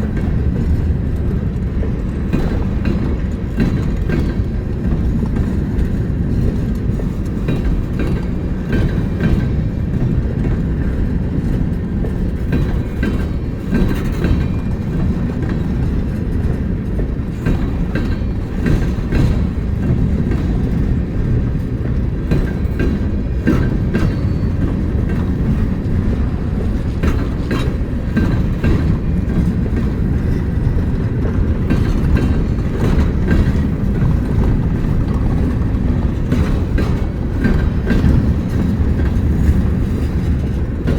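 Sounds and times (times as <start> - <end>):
train wheels rumbling on rail: 0.0 - 40.9
wheels clacking over rail joints: 0.0 - 40.9.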